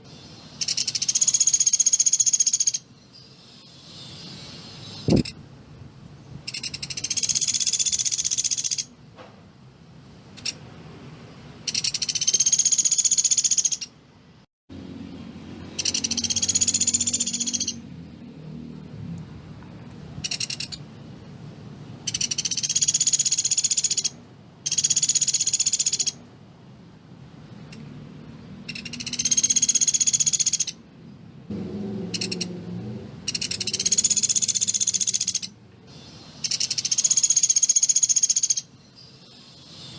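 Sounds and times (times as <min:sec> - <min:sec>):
woodpecker rattling trills: 0:00.6 - 0:02.8, 0:06.5 - 0:08.9, 0:11.6 - 0:13.9, 0:15.7 - 0:17.8, 0:20.2 - 0:20.8, 0:22.0 - 0:26.2, 0:28.6 - 0:30.8, 0:32.1 - 0:32.5, 0:33.3 - 0:35.5, 0:36.4 - 0:38.7.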